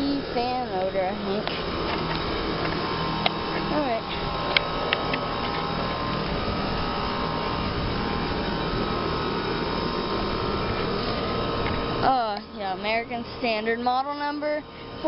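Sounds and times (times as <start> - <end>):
condenser fans whooshing: 0.0 - 15.0
mechanical hum: 0.0 - 15.0.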